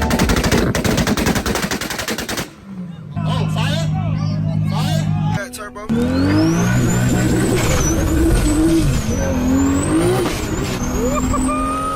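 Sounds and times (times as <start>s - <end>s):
car engine revving: 5.9s - 11.9s.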